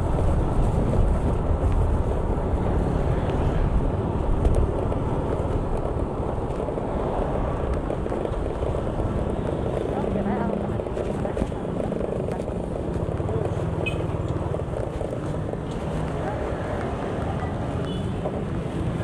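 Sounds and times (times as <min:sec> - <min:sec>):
wind on microphone: 0:00.0 - 0:13.6
vehicle rumble: 0:00.0 - 0:19.0.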